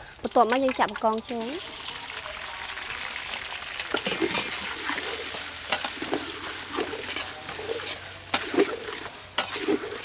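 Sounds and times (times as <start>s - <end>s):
prawns sizzling in hot oil: 0.0s - 10.0s
metal spoon scraping pan: 3.8s - 10.0s.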